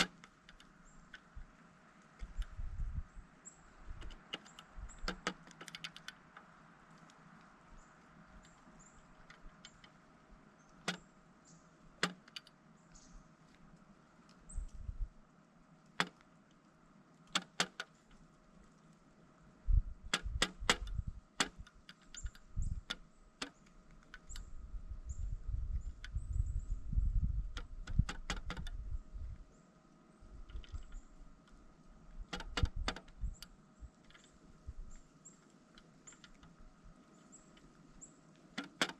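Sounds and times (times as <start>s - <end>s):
woodpecker pecking: 0.0s - 14.9s, 20.1s - 24.7s, 30.2s - 38.9s.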